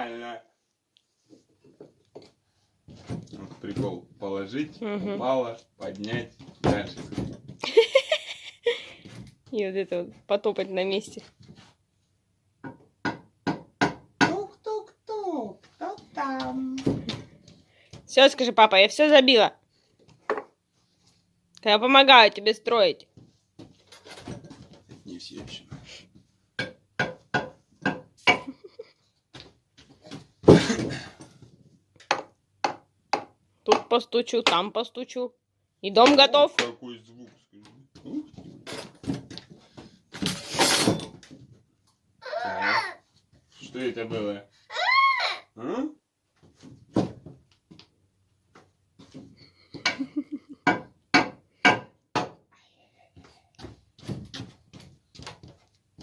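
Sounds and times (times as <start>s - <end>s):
stick tapping on wooden boards: 32.0s - 34.6s.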